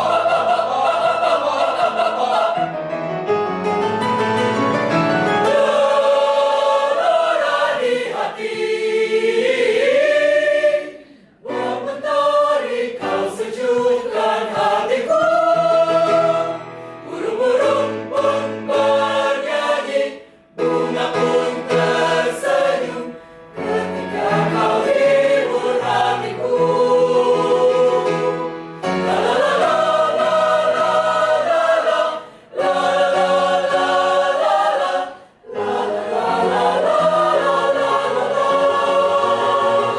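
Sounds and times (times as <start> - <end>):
choir singing: 0.0 - 3.0, 5.2 - 39.9.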